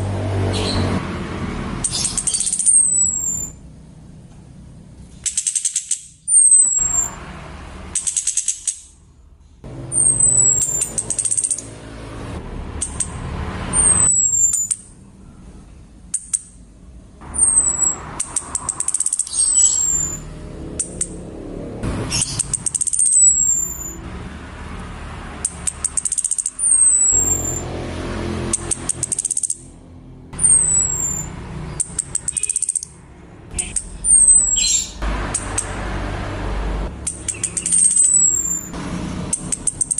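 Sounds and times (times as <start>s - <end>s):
rattling bird chatter: 1.8s - 3.6s, 5.1s - 7.2s, 7.8s - 9.0s, 9.8s - 11.8s, 13.8s - 15.0s, 17.3s - 21.2s, 22.0s - 24.0s, 25.4s - 27.6s, 28.5s - 29.8s, 30.4s - 35.8s, 37.0s - 39.9s
thin high falling bird whistles: 2.0s - 3.6s, 5.3s - 7.2s, 9.9s - 11.6s, 13.8s - 15.4s, 17.4s - 20.3s, 25.9s - 27.6s, 30.4s - 31.3s, 33.6s - 35.0s, 37.3s - 38.7s.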